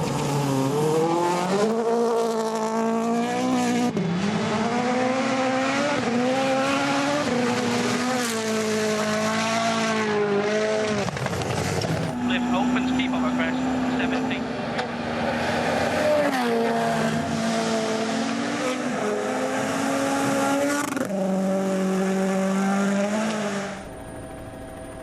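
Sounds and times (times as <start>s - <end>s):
rally car engine revving: 0.0s - 23.9s.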